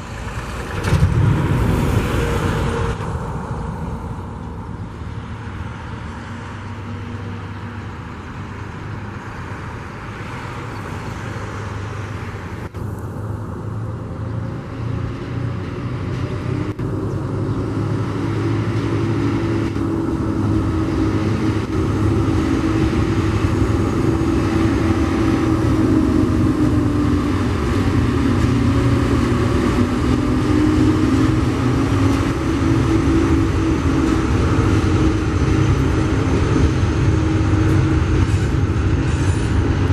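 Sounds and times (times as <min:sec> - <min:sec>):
diesel locomotive engines droning: 0:00.0 - 0:39.9.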